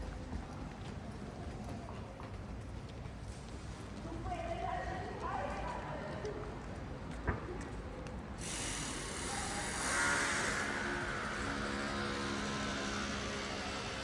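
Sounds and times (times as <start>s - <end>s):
tyre hiss: 8.4s - 11.2s.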